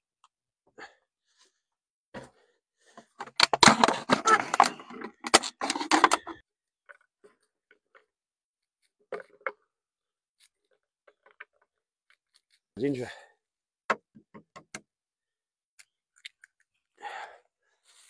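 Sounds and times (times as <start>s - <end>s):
plastic bottle being cut: 3.2s - 6.4s.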